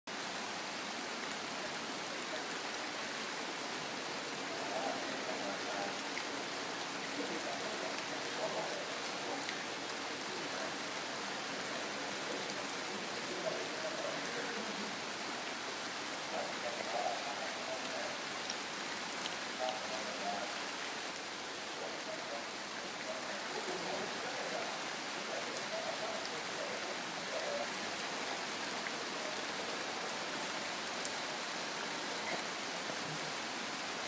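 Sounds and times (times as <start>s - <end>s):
heavy rain on leaves and stone: 0.1s - 34.0s.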